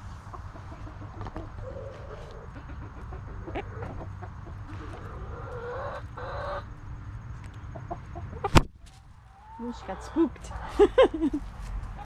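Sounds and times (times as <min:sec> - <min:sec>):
hen clucking: 0:00.2 - 0:06.7, 0:07.6 - 0:08.6, 0:09.3 - 0:11.4.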